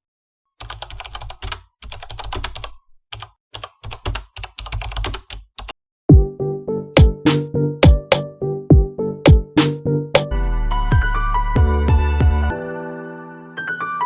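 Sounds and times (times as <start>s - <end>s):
typing on computer keyboard: 0.6s - 5.2s
electronic music with kick drum: 7.0s - 8.2s, 9.3s - 10.3s.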